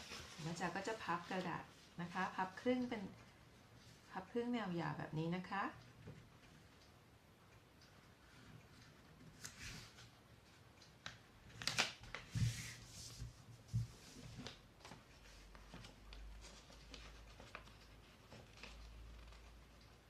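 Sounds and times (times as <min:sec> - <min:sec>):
paper rustling and rubbing: 0:00.0 - 0:01.8, 0:11.5 - 0:19.6.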